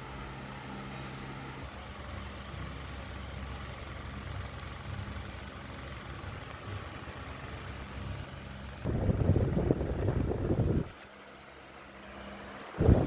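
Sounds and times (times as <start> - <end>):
electric fan running: 0.0 - 13.0
loud rough rumble: 1.6 - 10.9, 12.8 - 13.0.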